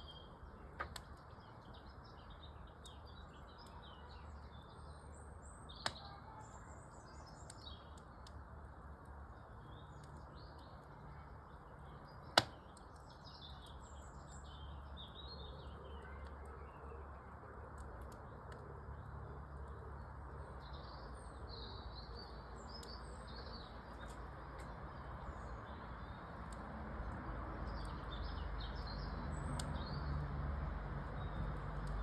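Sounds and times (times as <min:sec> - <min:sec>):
small birds chirping: 0:00.0 - 0:30.2, 0:31.0 - 0:32.0
wood fire popping: 0:00.2 - 0:16.4, 0:22.2 - 0:28.1, 0:28.8 - 0:32.0.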